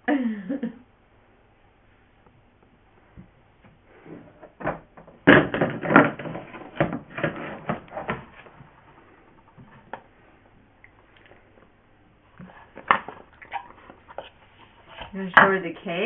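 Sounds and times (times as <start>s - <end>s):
objects being handled: 3.1s - 10.2s.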